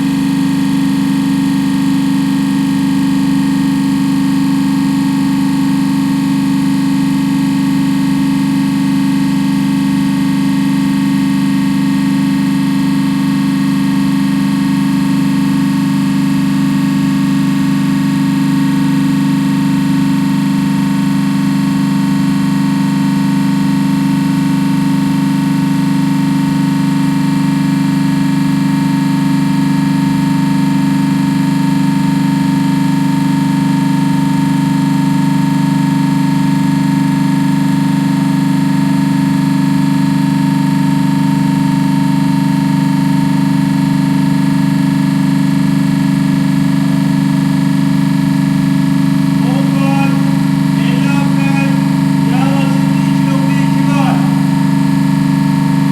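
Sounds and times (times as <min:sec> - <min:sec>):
refrigeration compressor humming: 0:45.7 - 0:55.9.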